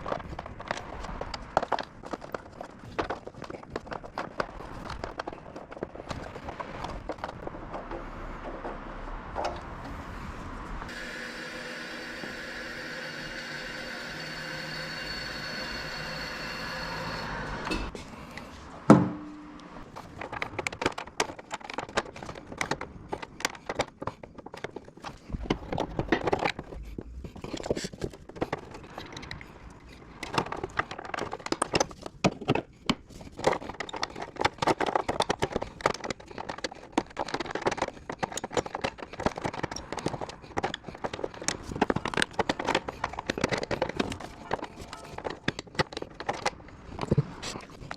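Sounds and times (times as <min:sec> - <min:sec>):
machine hum: 0:10.8 - 0:18.0.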